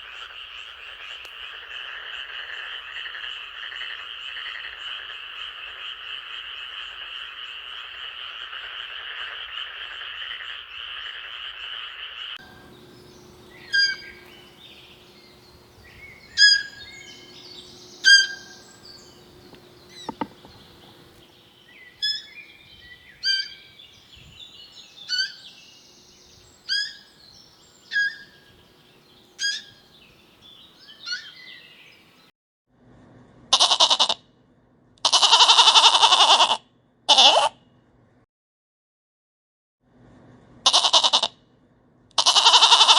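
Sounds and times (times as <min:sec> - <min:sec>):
frogs croaking: 0:00.0 - 0:31.8
loud animal call: 0:12.4 - 0:23.9, 0:24.9 - 0:25.6, 0:26.7 - 0:27.2, 0:27.8 - 0:28.6, 0:29.4 - 0:29.9, 0:35.0 - 0:37.5, 0:40.6 - 0:41.3, 0:42.2 - 0:42.9
short sharp bird-like calls: 0:12.4 - 0:28.6, 0:29.4 - 0:29.9, 0:30.8 - 0:31.7.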